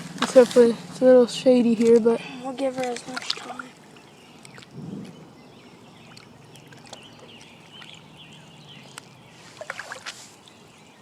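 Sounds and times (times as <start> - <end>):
water splashing: 1.8 - 5.2, 5.9 - 10.3.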